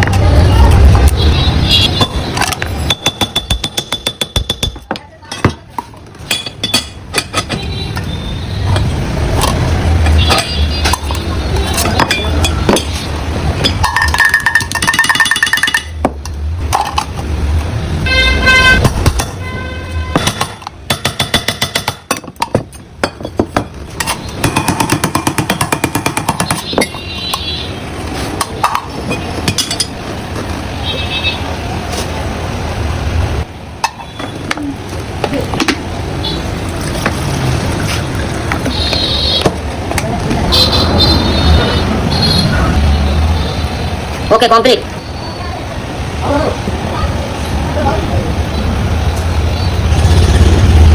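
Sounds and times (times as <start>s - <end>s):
vehicle engines running: 0.0s - 50.9s
vehicle horns: 0.8s - 2.9s, 7.4s - 9.1s, 10.0s - 11.8s, 18.0s - 20.6s, 26.4s - 28.0s, 30.7s - 31.6s, 38.6s - 39.6s, 40.3s - 44.4s.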